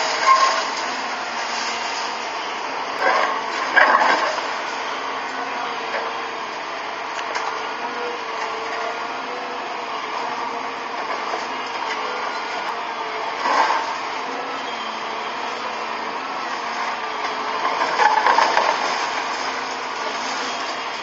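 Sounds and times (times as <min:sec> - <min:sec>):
loud crash of debris: 0:00.0 - 0:02.4, 0:17.6 - 0:21.0
excavator engine running: 0:00.0 - 0:21.0.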